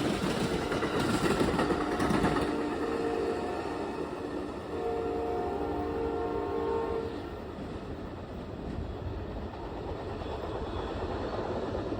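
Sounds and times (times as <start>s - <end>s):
train rumbling on rails: 0.0s - 11.9s
train horn: 2.0s - 7.4s.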